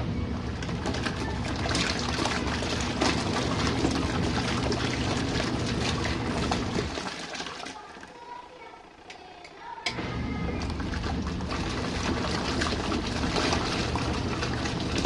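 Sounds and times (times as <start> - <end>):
steady electric hum: 0.0 - 6.9
washing machine running: 0.0 - 15.0.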